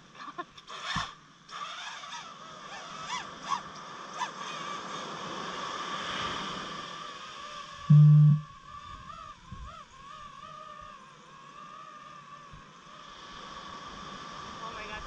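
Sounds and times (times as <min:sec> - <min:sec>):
high-pitched hum: 0:07.9 - 0:08.5.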